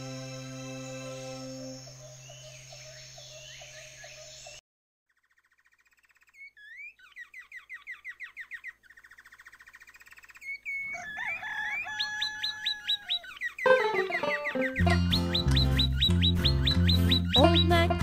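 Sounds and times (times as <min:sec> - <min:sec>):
birds chirping and trilling: 0:00.0 - 0:17.8
whistled bird tones: 0:10.2 - 0:17.6.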